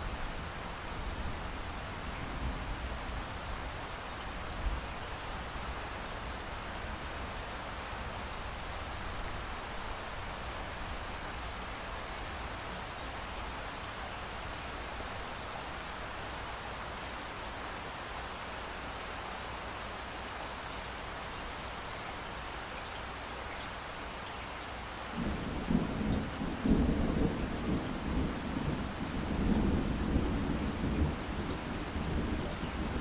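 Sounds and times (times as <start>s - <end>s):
steady rain falling: 0.0s - 33.0s
rumble of thunder: 25.2s - 33.0s.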